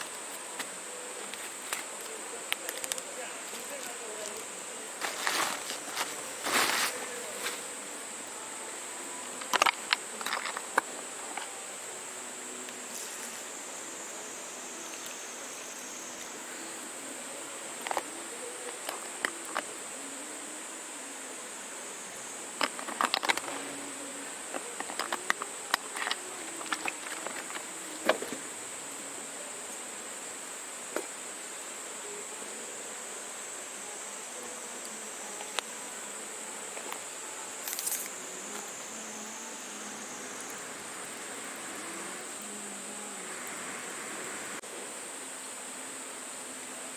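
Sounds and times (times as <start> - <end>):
twigs crackling and popping: 0.0 - 7.6, 9.4 - 11.5, 22.6 - 23.7, 24.5 - 28.4, 36.7 - 38.9.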